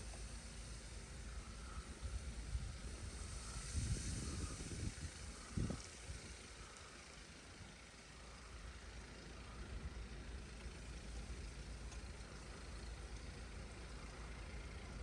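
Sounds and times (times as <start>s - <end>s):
strong wind gusting on microphone: 2.6s - 6.4s.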